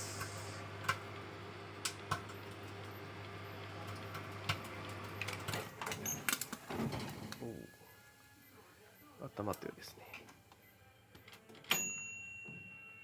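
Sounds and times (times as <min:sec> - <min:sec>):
microwave oven humming: 0:00.0 - 0:09.0.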